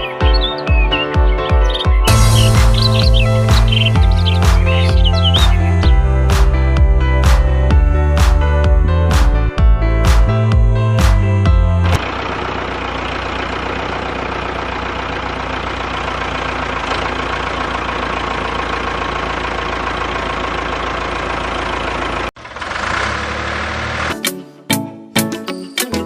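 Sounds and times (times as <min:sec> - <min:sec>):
background music: 0:00.0 - 0:12.0, 0:24.1 - 0:26.0.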